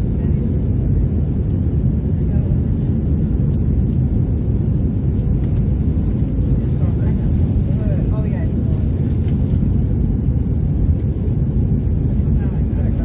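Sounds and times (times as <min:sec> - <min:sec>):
jet airliner engines rumbling: 0:00.0 - 0:13.0.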